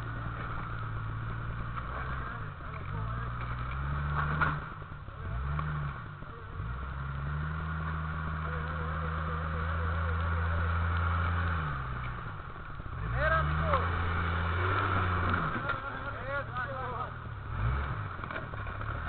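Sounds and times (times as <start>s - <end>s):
car engine revving under load: 0.0s - 19.0s.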